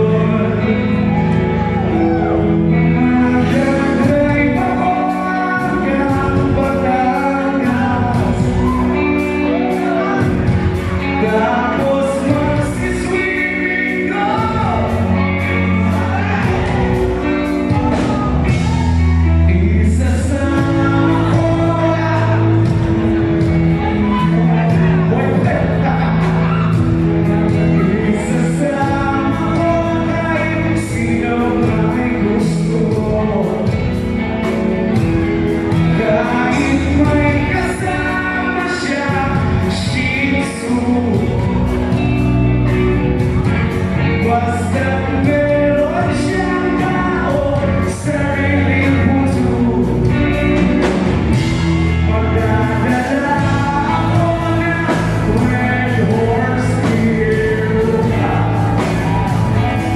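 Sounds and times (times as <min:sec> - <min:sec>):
band accompaniment: 0:00.0 - 0:59.9
person singing: 0:00.0 - 0:59.9
sustained bass notes: 0:00.0 - 0:59.9.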